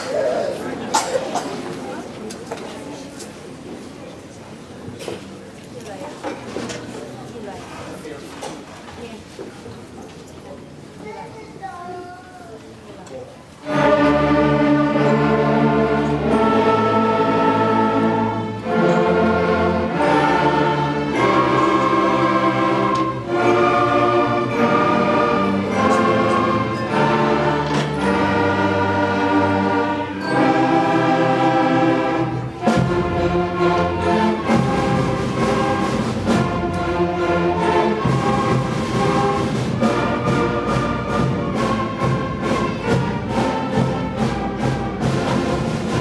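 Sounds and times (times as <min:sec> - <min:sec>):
concert band and string orchestra: 0:12.6 - 0:46.0.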